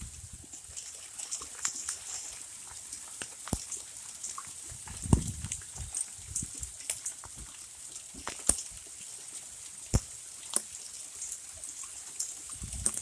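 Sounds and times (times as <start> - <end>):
hiss of falling hail and rain: 0.0 - 13.0
hailstones striking hard surfaces: 4.8 - 8.9.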